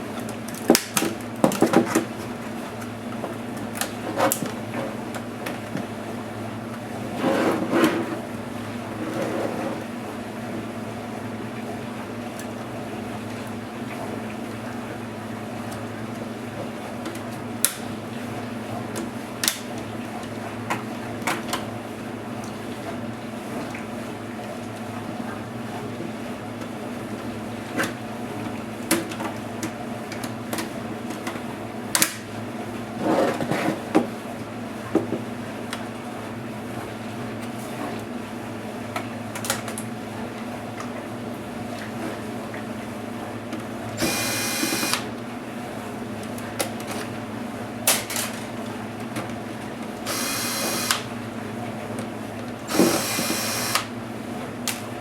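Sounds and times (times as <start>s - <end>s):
electric screwdriver whirring: 44.0s - 45.1s, 50.0s - 51.1s, 52.7s - 53.9s.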